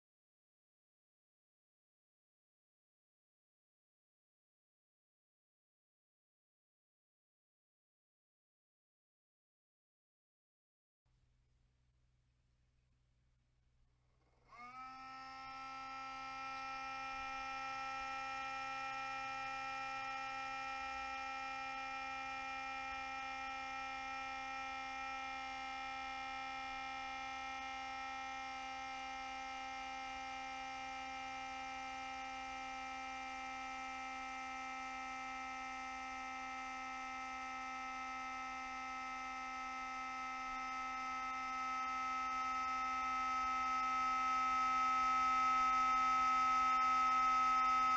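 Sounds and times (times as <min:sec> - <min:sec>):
cooling fan humming whine: 0:36.6 - 0:47.9.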